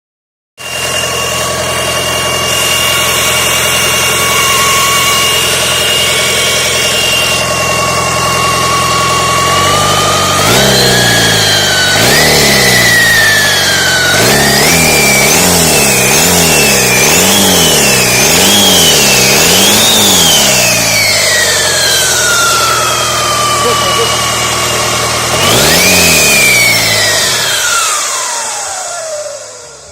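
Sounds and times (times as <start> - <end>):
thin high whine: 0.6 - 14.2
diesel engine idling and revving: 0.6 - 29.9.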